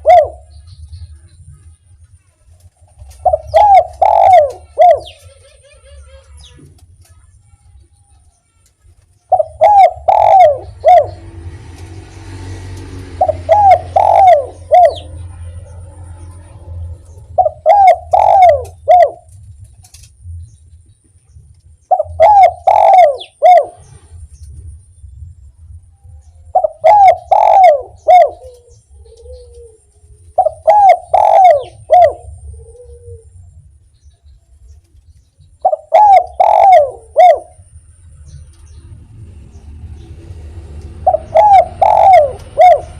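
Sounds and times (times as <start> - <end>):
dove cooing: 0.0 - 0.5, 2.9 - 6.7, 9.3 - 19.4, 21.9 - 24.2, 26.4 - 33.6, 35.6 - 37.8, 40.6 - 42.9.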